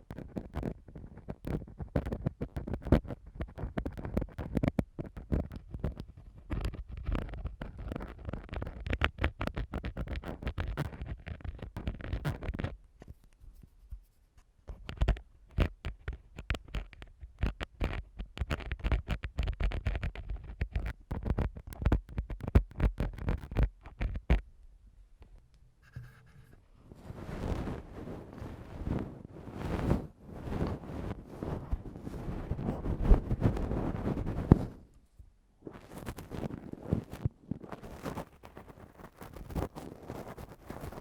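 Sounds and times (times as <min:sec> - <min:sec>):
tool scraping a microphone: 0:25.8 - 0:35.0.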